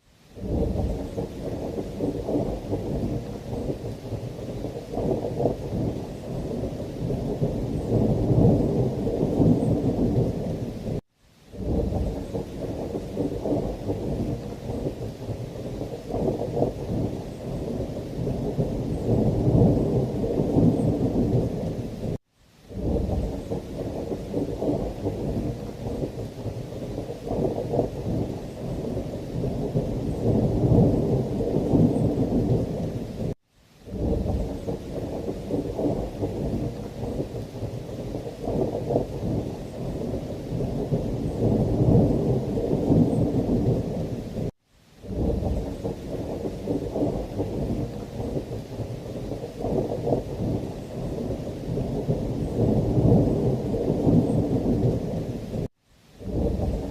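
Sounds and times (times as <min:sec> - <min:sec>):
heavy rain: 0:00.0 - 0:56.9
rolling thunder rumble: 0:00.4 - 0:11.0, 0:11.6 - 0:56.9.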